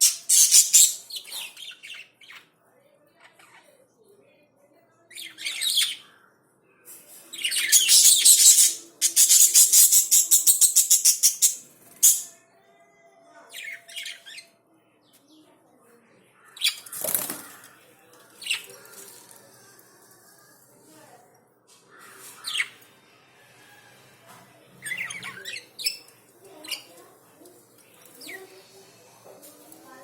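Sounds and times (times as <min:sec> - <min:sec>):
birds flapping wings: 0:16.9 - 0:17.6.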